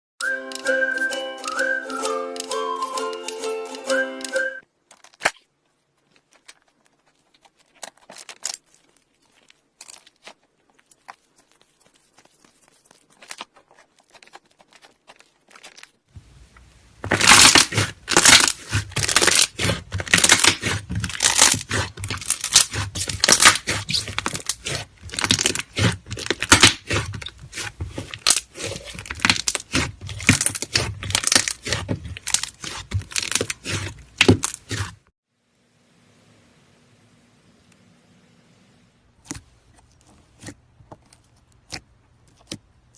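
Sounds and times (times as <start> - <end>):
slime crackling and popping: 4.9 - 35.0.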